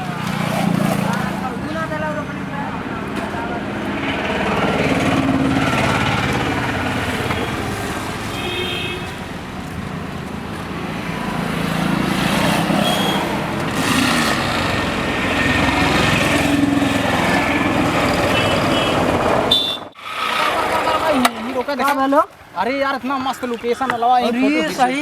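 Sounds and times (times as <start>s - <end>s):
motorcycle engine running: 0.0s - 8.2s
road and wind noise: 0.0s - 25.0s.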